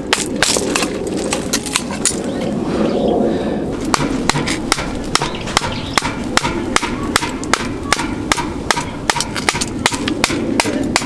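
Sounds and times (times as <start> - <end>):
sharp strikes: 3.8 - 11.0.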